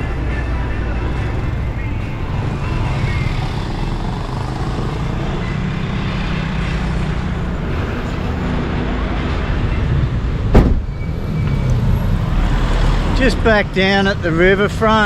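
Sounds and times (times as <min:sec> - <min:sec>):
road noise: 0:00.0 - 0:15.0
vehicle engine hum: 0:00.0 - 0:15.0
sharp knock: 0:10.5 - 0:10.9.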